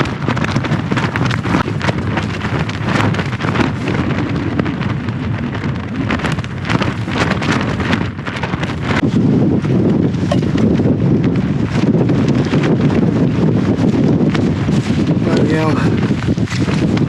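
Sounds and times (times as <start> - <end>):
gusting wind buffeting microphone: 0.0 - 17.0
sharp cracks and flaps: 0.0 - 17.0.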